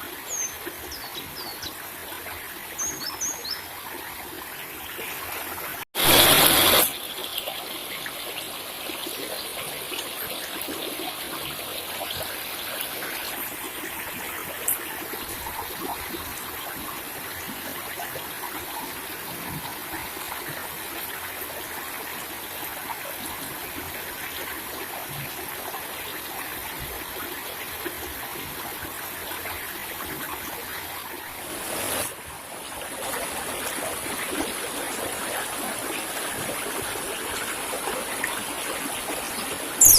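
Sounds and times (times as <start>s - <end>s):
water trickling: 33.5s - 39.9s.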